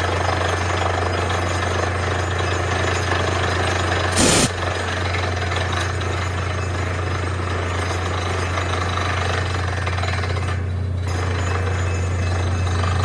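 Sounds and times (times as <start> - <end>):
drilling rattle: 0.8 - 9.0.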